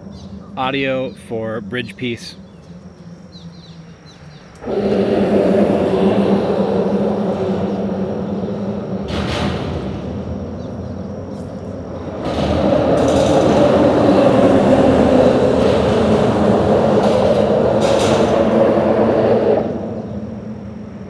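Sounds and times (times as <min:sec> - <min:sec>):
low-pitched drone: 0:00.0 - 0:21.0
vehicle passing over bridge: 0:00.0 - 0:21.0.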